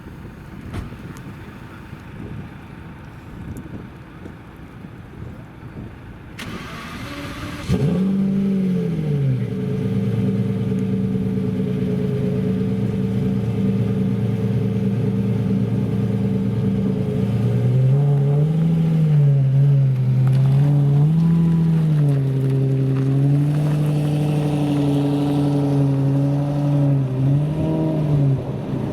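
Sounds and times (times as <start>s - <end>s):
car engine revving and idling: 6.4s - 28.9s.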